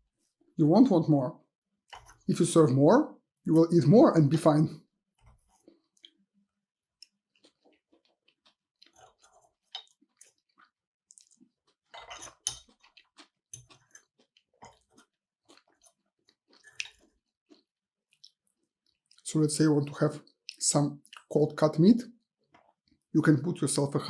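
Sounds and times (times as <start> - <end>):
person chewing food: 5.2 - 19.2, 20.2 - 21.3, 22.3 - 23.1.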